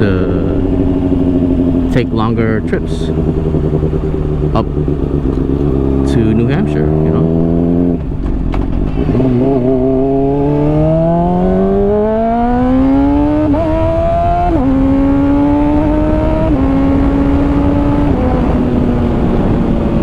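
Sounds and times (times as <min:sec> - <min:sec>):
motorcycle engine accelerating: 0:00.0 - 0:20.0
wind rush: 0:06.9 - 0:20.0.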